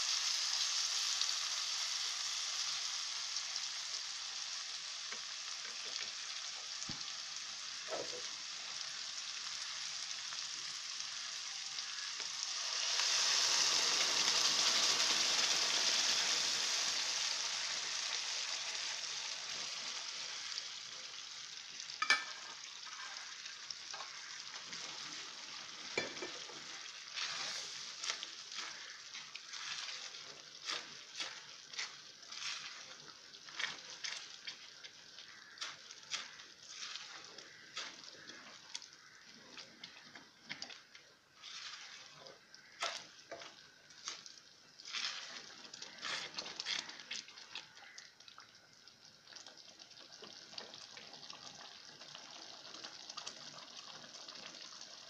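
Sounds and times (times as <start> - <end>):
sizzling in oil: 0.0 - 55.0
spatula scraping a wok: 25.9 - 38.7, 41.4 - 44.2, 44.8 - 47.2.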